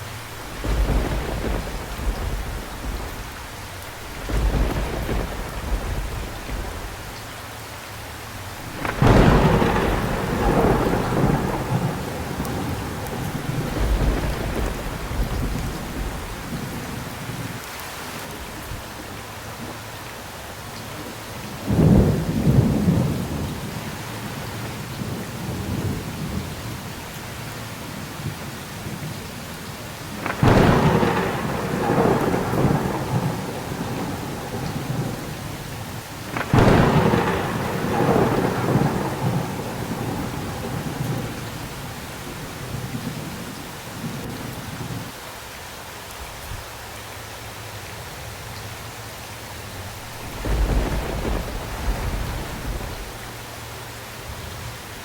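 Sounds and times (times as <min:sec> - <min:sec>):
thunder claps rumbling: 0:00.0 - 0:17.7, 0:21.7 - 0:27.0, 0:30.0 - 0:45.2, 0:49.5 - 0:54.8
steady rain falling: 0:00.0 - 0:55.0.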